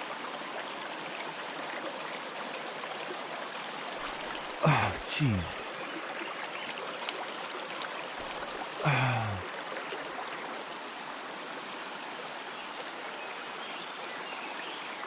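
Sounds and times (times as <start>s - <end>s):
stream flowing over rocks: 0.0s - 14.2s
person exclaiming: 4.6s - 5.8s, 8.8s - 9.4s.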